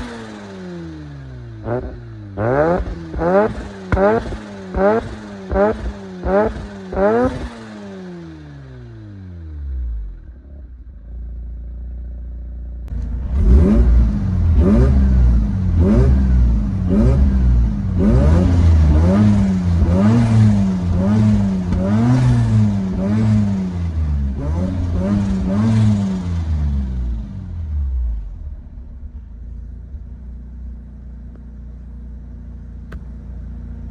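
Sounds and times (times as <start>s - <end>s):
rotary engine idling and revving: 0.0s - 33.9s.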